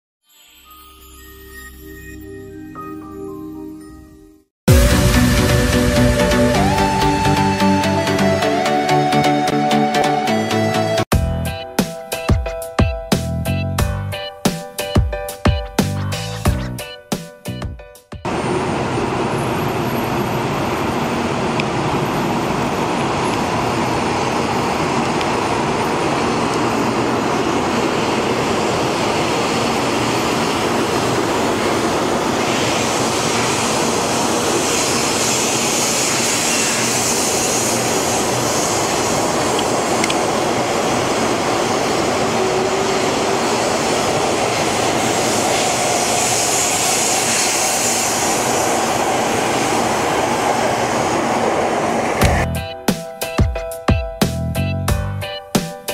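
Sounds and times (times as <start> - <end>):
electric train passing: 4.7 - 12.8, 18.3 - 52.8
high hiss: 28.4 - 52.4.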